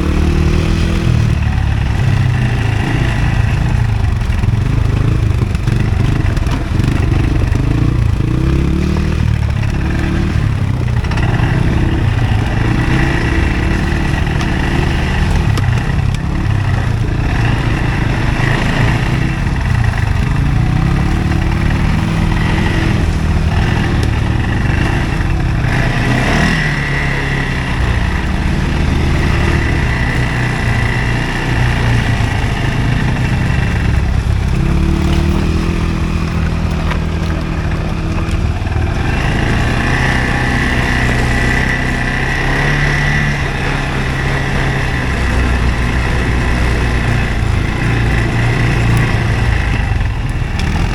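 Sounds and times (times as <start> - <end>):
quad engine revving: 0.0 - 50.9.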